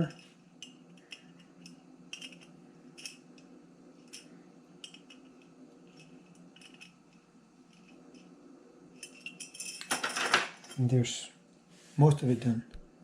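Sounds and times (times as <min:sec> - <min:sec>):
small metal parts clicking: 0:00.0 - 0:08.3, 0:09.0 - 0:10.8.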